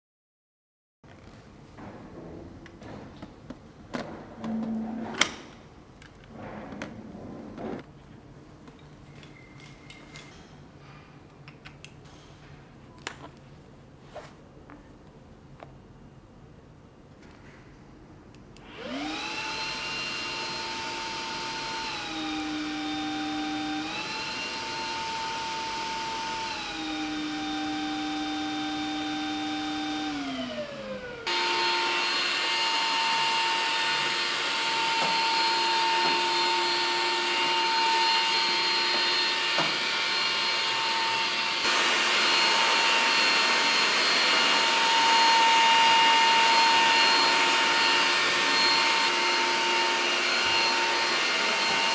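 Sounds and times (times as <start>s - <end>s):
vacuum cleaner motor whine: 18.6s - 51.9s.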